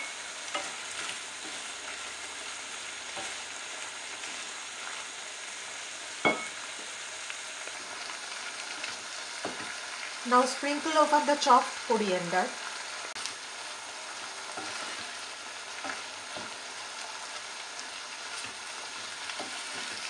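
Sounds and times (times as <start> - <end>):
food sizzling in a pan: 0.0 - 20.0
wooden spatula scraping: 0.5 - 5.2, 14.3 - 16.7, 18.4 - 20.0.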